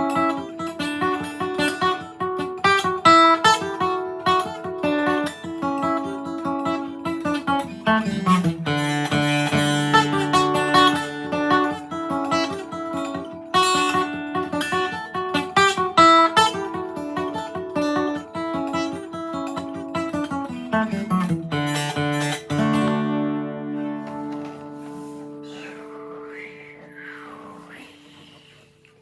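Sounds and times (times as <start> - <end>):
acoustic guitar flatpicked: 0.0 - 28.8
guitar chord strummed ringing: 8.0 - 26.9.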